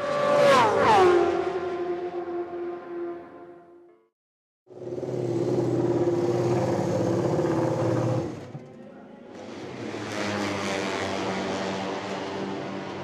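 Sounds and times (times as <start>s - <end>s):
racing motorcycle engine revving: 4.7s - 8.5s.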